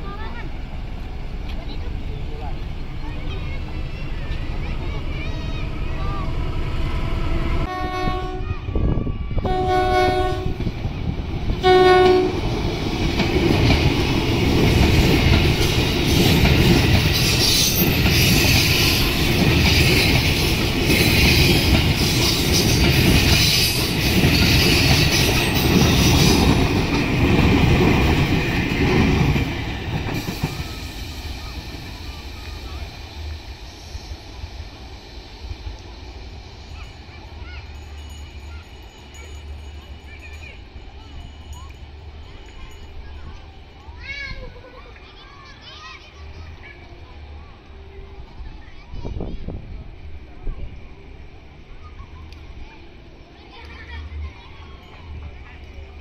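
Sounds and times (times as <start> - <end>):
train horn blasts: 7.7 - 8.7, 9.4 - 10.7, 11.6 - 12.6
train wheels clattering over rail joints: 12.4 - 33.6.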